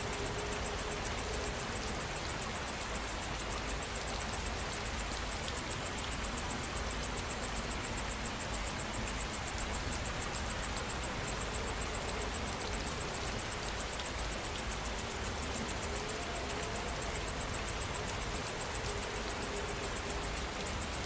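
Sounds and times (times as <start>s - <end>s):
insect chirping in pulses: 0.0s - 21.0s
steady rain falling: 0.0s - 21.0s.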